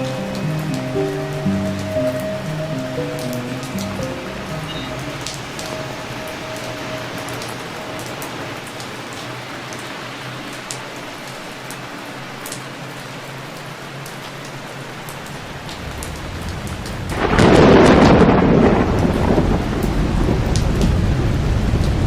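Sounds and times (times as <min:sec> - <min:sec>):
thunder rumble: 0:00.0 - 0:09.5, 0:15.4 - 0:22.0
steady rain hiss: 0:00.0 - 0:22.0.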